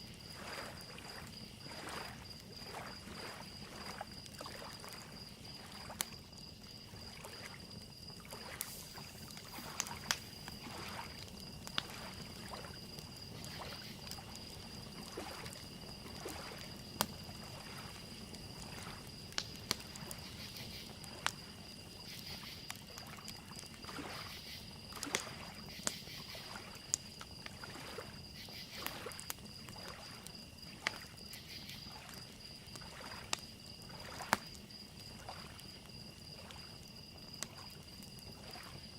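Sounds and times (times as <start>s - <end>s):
cricket trill: 0.0s - 38.9s
lake waves lapping: 0.1s - 21.2s, 23.8s - 25.6s, 27.5s - 31.1s, 32.8s - 34.5s, 35.1s - 35.7s, 38.4s - 38.9s
wood fire crackling: 0.1s - 23.9s.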